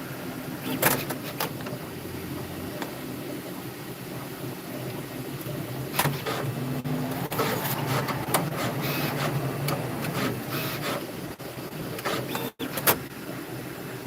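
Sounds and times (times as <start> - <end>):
machine motor whirring: 5.9 - 11.2.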